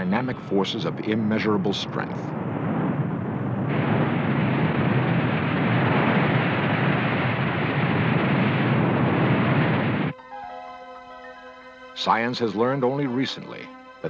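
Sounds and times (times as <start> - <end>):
loud steady roar: 1.9 - 10.1.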